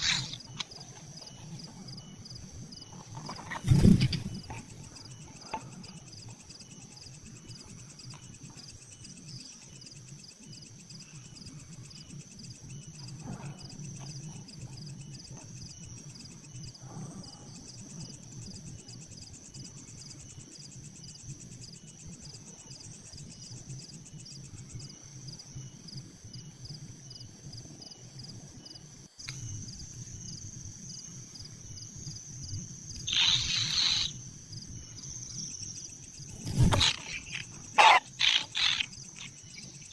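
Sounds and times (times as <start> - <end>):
insects trilling: 0.0 - 39.9
chicks begging calls: 33.1 - 34.1, 36.5 - 39.4.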